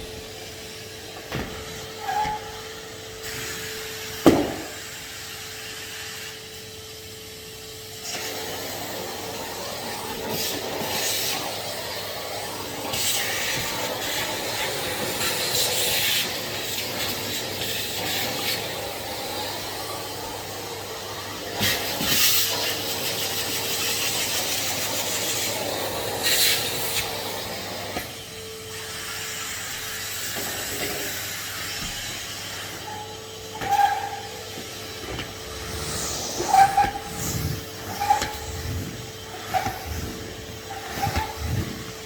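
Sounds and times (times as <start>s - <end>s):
vacuum cleaner motor hum: 0.0s - 42.0s
hissing suction and rubbing: 28.7s - 42.0s.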